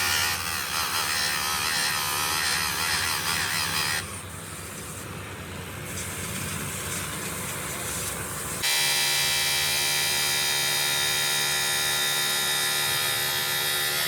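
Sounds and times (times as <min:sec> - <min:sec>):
machine whirring and grinding: 0:05.8 - 0:14.0.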